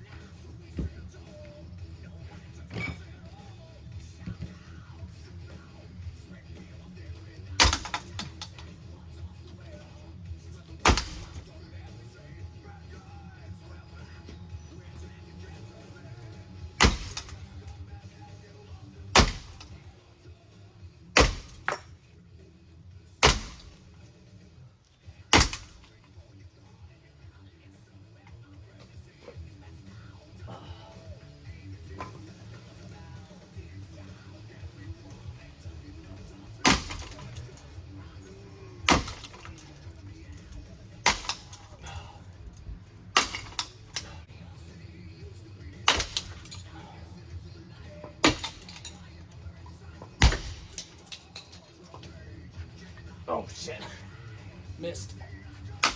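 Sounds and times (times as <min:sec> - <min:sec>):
faint music: 0:00.0 - 0:55.9
tool hitting ceiling fan: 0:16.8 - 0:17.4, 0:23.2 - 0:23.8
hard blows smashing ceiling fan: 0:16.8 - 0:17.5, 0:23.2 - 0:23.8, 0:36.6 - 0:37.6, 0:38.8 - 0:39.8, 0:43.1 - 0:44.3, 0:48.2 - 0:49.0.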